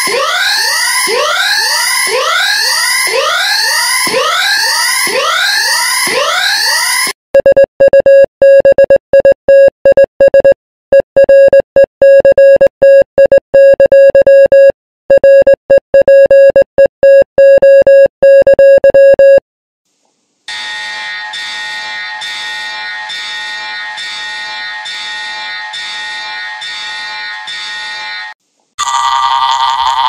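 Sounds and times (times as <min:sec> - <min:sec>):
buzzy electronic alarm beeps: 0:20.5 - 0:29.7.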